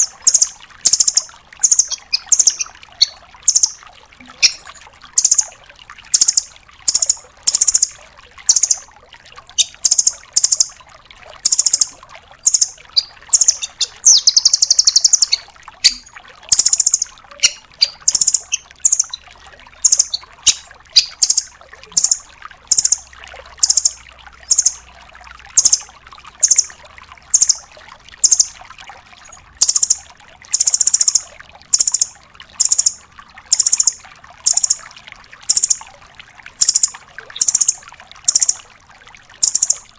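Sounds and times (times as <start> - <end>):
bird high-pitched chirps: 0.0 - 5.5, 6.2 - 7.9, 8.5 - 8.8, 9.6 - 10.7, 11.4 - 19.2, 19.8 - 23.0, 23.6 - 24.8, 25.6 - 25.8, 26.4 - 26.7, 27.3 - 27.6, 28.2 - 28.6, 29.2 - 34.8, 35.5 - 35.8, 36.6 - 38.6, 39.4 - 39.9
bird buzzy trill: 11.5 - 19.2.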